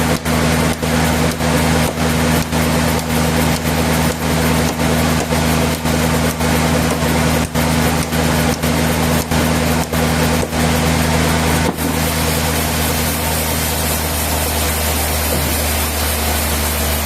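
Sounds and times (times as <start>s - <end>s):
sawmill machinery running: 0.0s - 17.0s.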